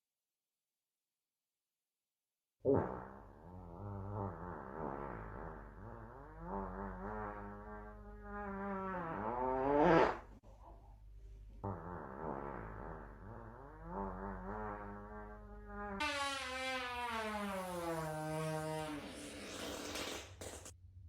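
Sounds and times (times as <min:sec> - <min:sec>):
buzzing fart sound effect: 0:02.7 - 0:10.3, 0:11.6 - 0:20.7.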